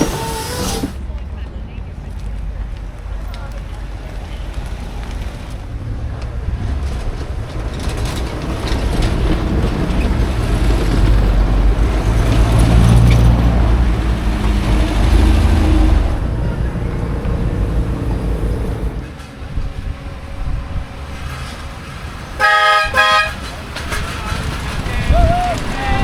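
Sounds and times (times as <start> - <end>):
vehicle driving past: 5.9 - 22.4.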